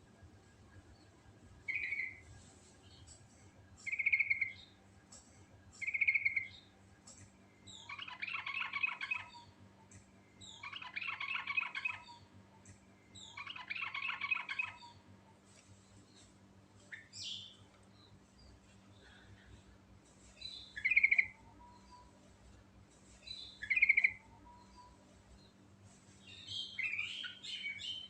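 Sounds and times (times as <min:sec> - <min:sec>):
bulbul singing: 0:01.6 - 0:02.3, 0:03.8 - 0:04.8, 0:05.7 - 0:15.0, 0:20.3 - 0:22.2, 0:23.1 - 0:25.0, 0:26.2 - 0:28.0.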